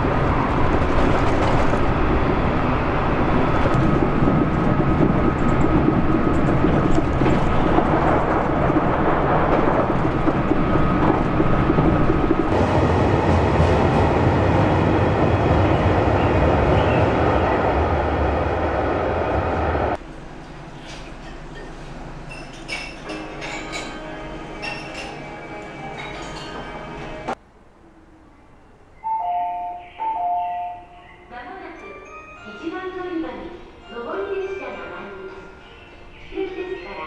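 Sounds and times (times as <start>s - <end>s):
train running noise from inside: 0.0s - 18.4s, 19.5s - 27.4s
electric train pulling in: 0.0s - 22.4s, 23.1s - 37.0s.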